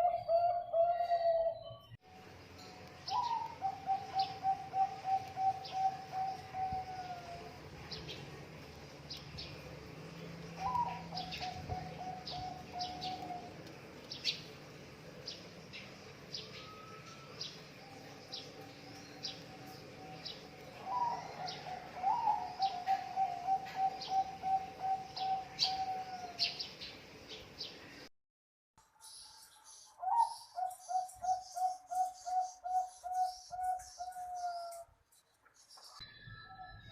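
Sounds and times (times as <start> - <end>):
dove cooing in trilled phrases: 0.0 - 1.7, 3.1 - 7.5, 10.6 - 13.6, 20.8 - 26.5
small birds chirping: 2.8 - 28.1, 29.0 - 36.9.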